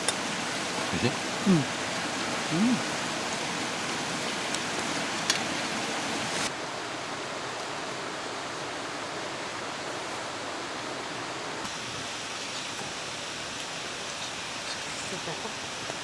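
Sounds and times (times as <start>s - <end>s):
stream flowing over rocks: 0.0s - 7.2s.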